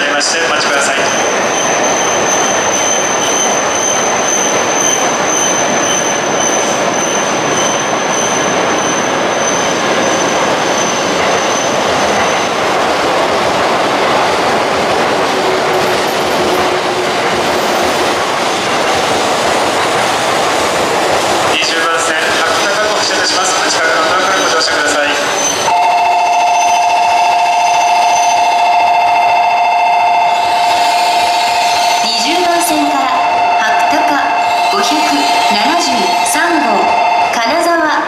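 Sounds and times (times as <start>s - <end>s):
train rolling with wheel noise: 0.0s - 38.0s.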